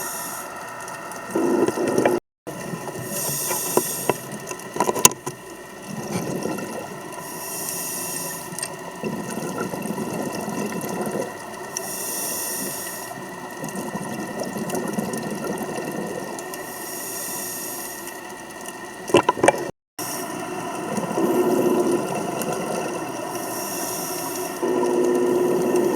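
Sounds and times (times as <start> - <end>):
regulator hiss on inhale: 0.0 - 2.1, 2.9 - 4.4, 7.2 - 8.7, 11.7 - 13.2, 16.6 - 18.2, 20.0 - 25.9
exhaled bubbles rushing: 1.2 - 3.6, 5.6 - 7.2, 8.8 - 11.6, 13.2 - 16.5, 19.0 - 19.7, 20.4 - 23.4, 24.5 - 25.9.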